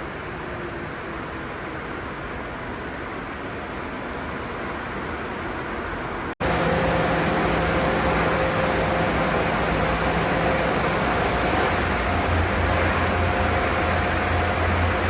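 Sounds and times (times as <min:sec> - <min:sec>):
car wash sprays and motors rushing: 0:06.4 - 0:15.0
steady hum: 0:06.4 - 0:15.0.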